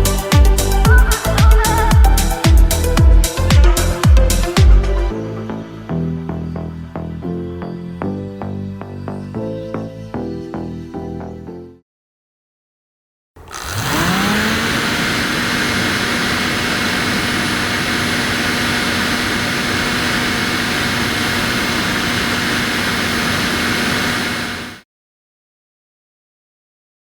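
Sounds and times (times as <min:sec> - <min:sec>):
small fan motor whine: 0:13.4 - 0:24.8.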